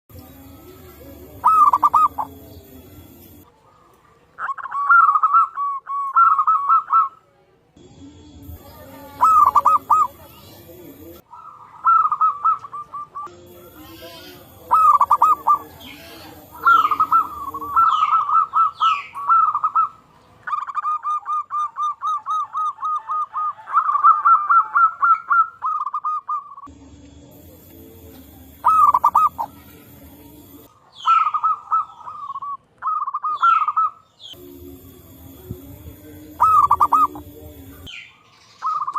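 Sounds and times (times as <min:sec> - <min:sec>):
doves cooing: 0:00.1 - 0:07.2, 0:08.4 - 0:38.9
high sliding chirps: 0:00.4 - 0:03.5, 0:08.4 - 0:11.2, 0:13.5 - 0:18.5, 0:26.6 - 0:31.2, 0:34.3 - 0:38.0.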